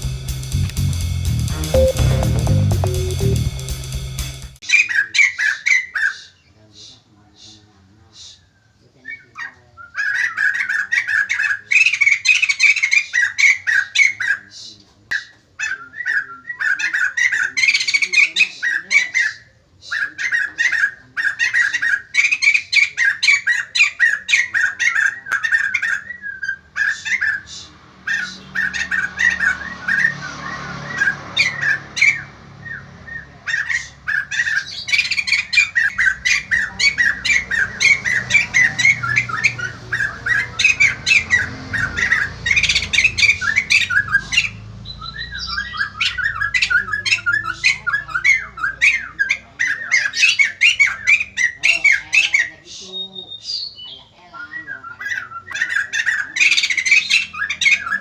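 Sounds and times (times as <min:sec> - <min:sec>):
bird harsh chattering calls: 0:09.2 - 0:58.0.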